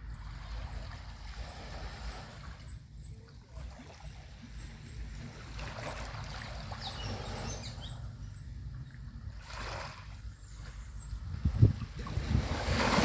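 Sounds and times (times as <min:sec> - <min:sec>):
low rumble of surf: 0:00.0 - 0:13.0
faint high chirp: 0:00.1 - 0:05.1, 0:06.7 - 0:09.6
small waves washing onto beach: 0:09.2 - 0:13.0.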